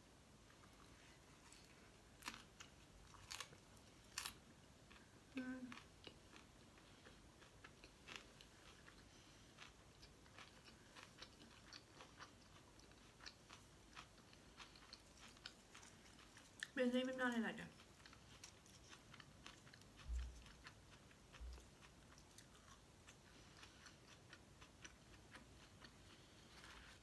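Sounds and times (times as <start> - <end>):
close-up chewing: 0.5 - 27.0
crunchy bites: 2.2 - 5.0.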